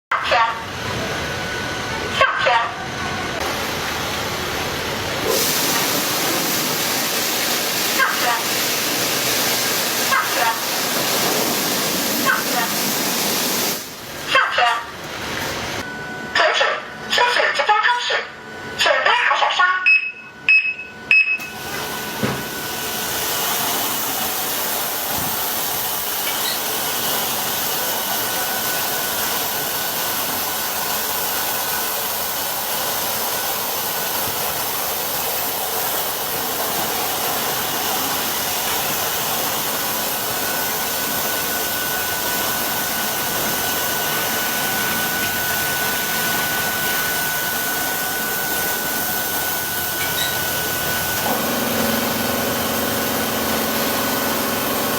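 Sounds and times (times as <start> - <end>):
car wash machine whooshing: 2.8 - 15.9, 21.4 - 54.9.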